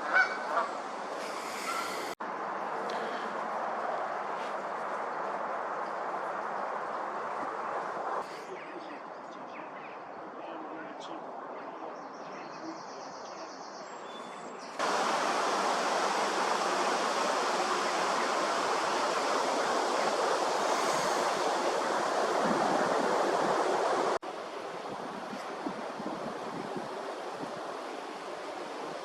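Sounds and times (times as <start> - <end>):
soft outdoor hiss: 0.0 - 29.0
loud steady rushing noise: 14.8 - 29.0.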